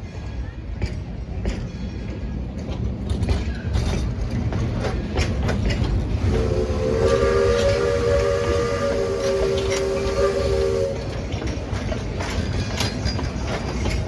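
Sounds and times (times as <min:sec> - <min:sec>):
steam locomotive rumbling: 0:00.0 - 0:14.0
locomotive clanks: 0:00.1 - 0:14.0
steam whistle chord: 0:06.3 - 0:11.1.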